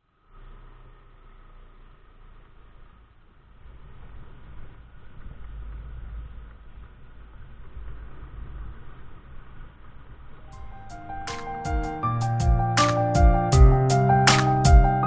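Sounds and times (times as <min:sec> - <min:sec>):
scooter engine running: 0:00.0 - 0:11.1
road rumble: 0:00.0 - 0:15.0.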